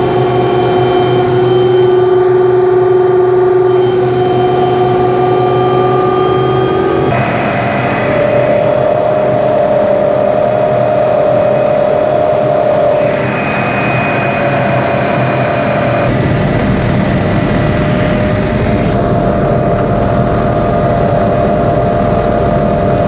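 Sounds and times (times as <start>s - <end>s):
helicopter engine and rotor: 0.0s - 23.0s.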